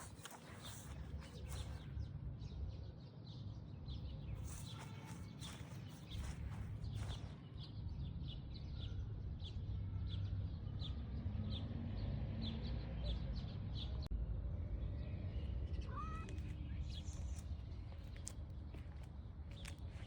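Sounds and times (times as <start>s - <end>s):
small bird chirping: 0.0s - 2.1s, 4.3s - 7.8s.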